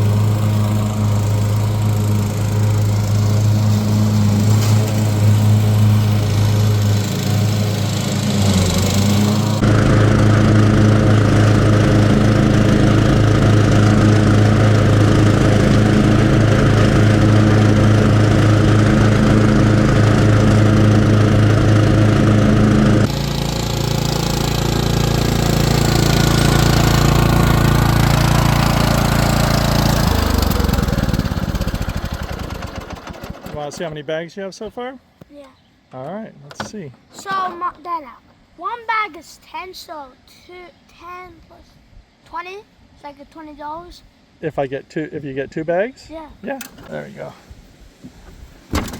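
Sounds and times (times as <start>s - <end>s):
riding lawn mower engine: 0.0s - 33.9s, 48.0s - 48.9s.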